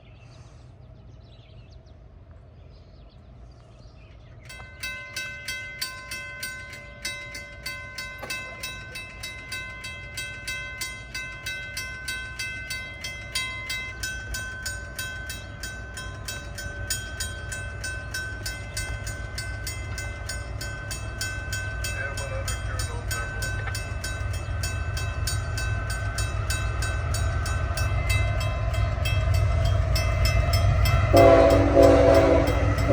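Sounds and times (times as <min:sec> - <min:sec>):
low train rumble: 0:00.0 - 0:32.9
level-crossing bell ringing: 0:04.5 - 0:32.9.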